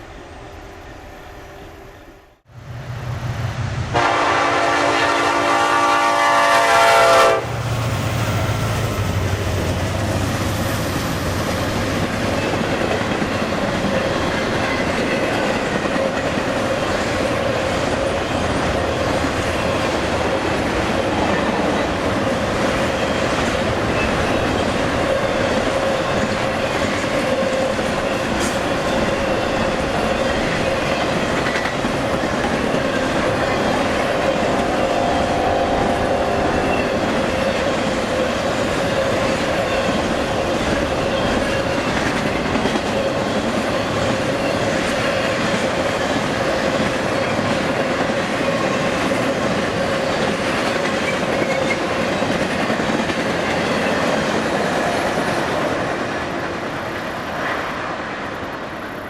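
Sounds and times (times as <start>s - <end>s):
train horn blast: 3.9s - 7.6s, 34.5s - 37.0s
train wheels clickety-clack: 7.2s - 59.0s.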